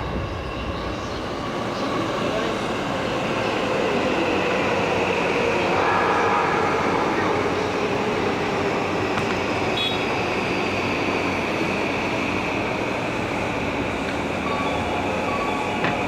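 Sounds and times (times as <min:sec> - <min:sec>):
electric train rumbling: 0:00.0 - 0:16.0
high even whine: 0:05.2 - 0:09.6.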